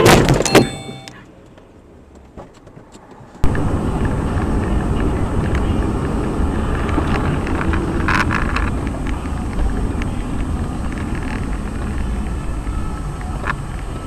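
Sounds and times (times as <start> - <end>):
brief high-pitched sound: 0.0 - 1.2
car driving on road: 0.0 - 14.0.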